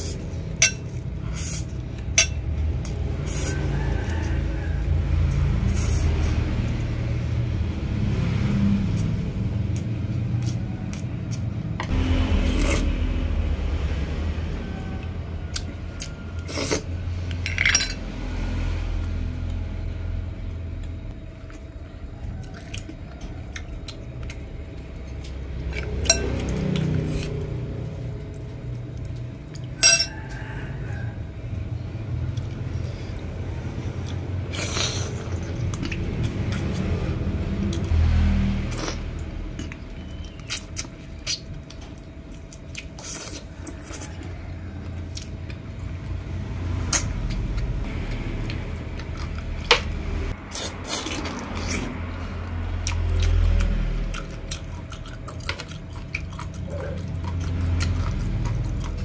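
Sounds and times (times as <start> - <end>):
utensils clinking on dishes: 0.5 - 1.1, 2.1 - 2.5, 16.6 - 18.0, 25.7 - 26.6, 29.7 - 30.4
person chewing food: 8.8 - 13.0, 14.6 - 17.4, 20.8 - 59.0.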